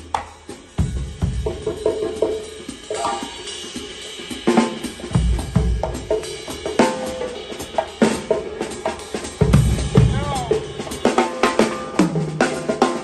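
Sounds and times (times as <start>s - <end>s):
drums struck loosely: 0.0s - 13.0s.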